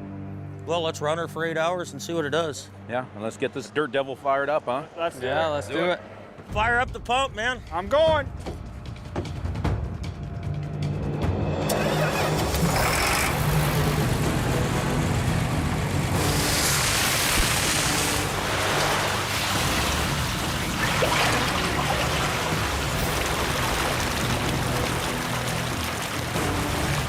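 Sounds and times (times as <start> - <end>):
water pump engine running: 12.3 - 27.0
water gushing through sluice: 12.4 - 27.0.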